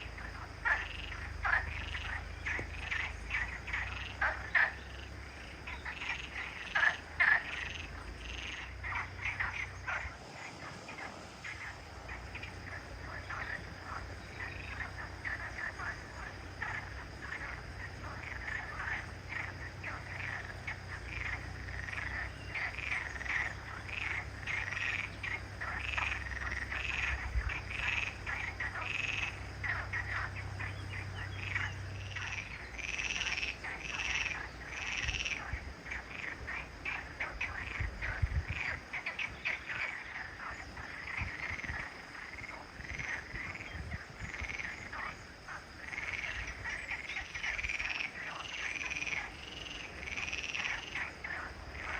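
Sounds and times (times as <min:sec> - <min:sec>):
low steady hum: 0:00.0 - 0:38.8
frogs croaking: 0:00.0 - 0:51.9.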